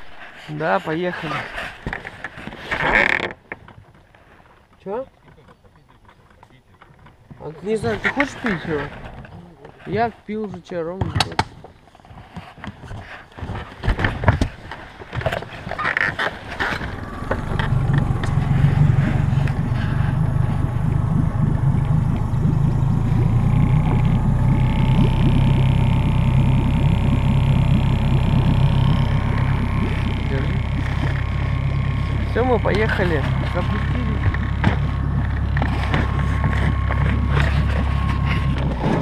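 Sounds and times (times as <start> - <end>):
outboard motor starting and running: 7.0 - 10.1, 13.0 - 39.0.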